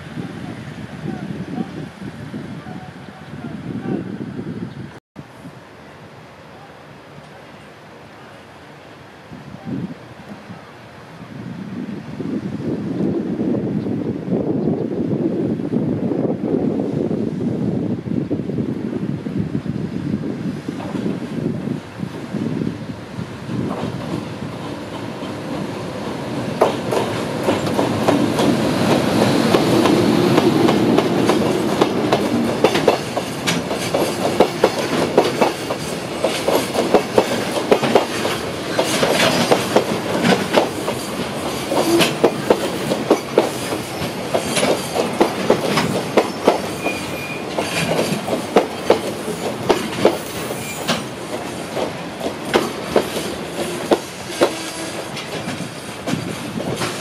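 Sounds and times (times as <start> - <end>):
train wheels clacking over rail joints: 23.6 - 57.0.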